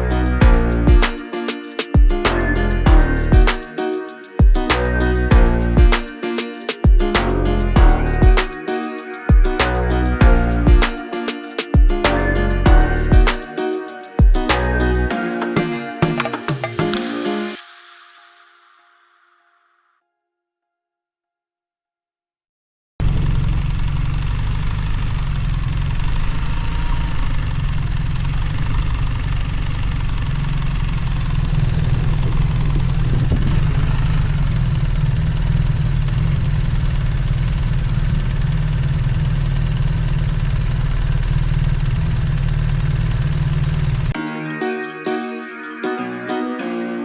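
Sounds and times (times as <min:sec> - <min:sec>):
motorcycle engine running: 0:23.0 - 0:44.1.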